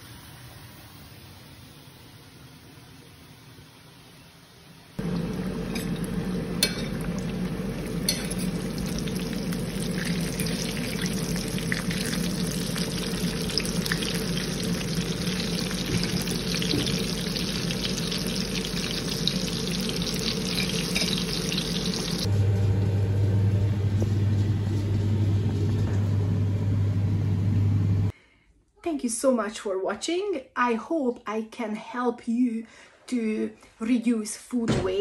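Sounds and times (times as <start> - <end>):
food sizzling in hot oil: 5.0 - 22.3
steady low hum: 5.0 - 28.1.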